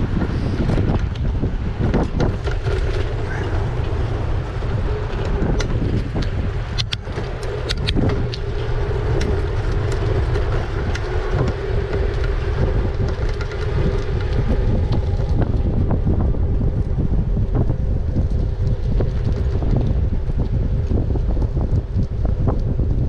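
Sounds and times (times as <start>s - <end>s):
steady low hum: 0.0s - 23.0s
wind rumbling on microphone: 0.0s - 23.0s
sharp clicks: 5.6s - 8.6s.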